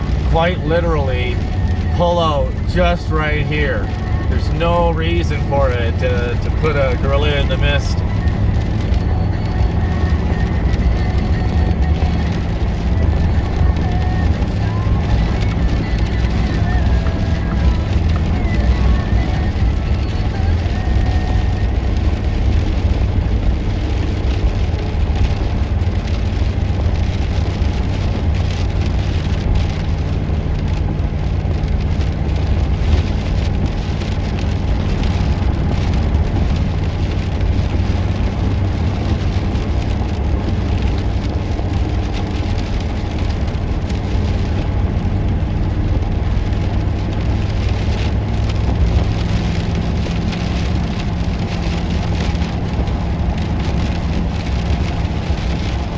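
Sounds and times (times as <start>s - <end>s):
vehicle engine drone: 0.0s - 55.9s.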